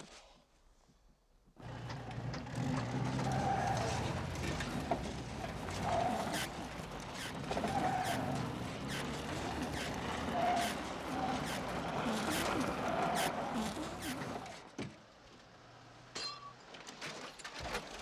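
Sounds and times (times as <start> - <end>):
car engine running: 1.6 - 14.6.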